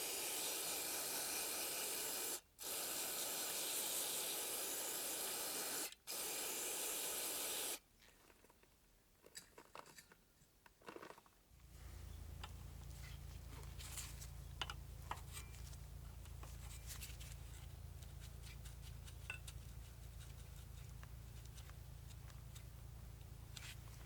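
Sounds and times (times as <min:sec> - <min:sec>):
light clicks and scrapes of hand work: 0:08.0 - 0:24.0
steady low hum: 0:11.6 - 0:24.0.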